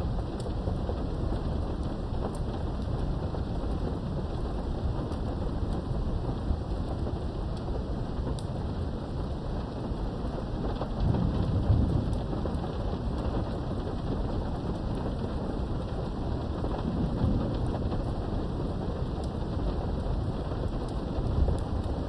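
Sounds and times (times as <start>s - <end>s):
rain behind a window: 0.0s - 22.0s
thunder rolling: 10.4s - 22.0s.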